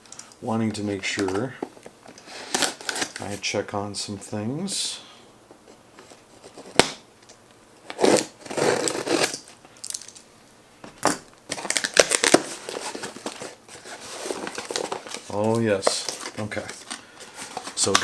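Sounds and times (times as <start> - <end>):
packaging crinkling and tearing: 2.1 - 3.4, 7.8 - 10.2, 11.5 - 18.0.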